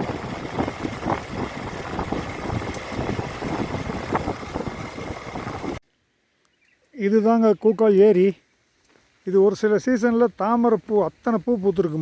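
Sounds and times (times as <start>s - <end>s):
motorcycle engine running: 0.0s - 5.8s
road noise: 0.0s - 5.8s.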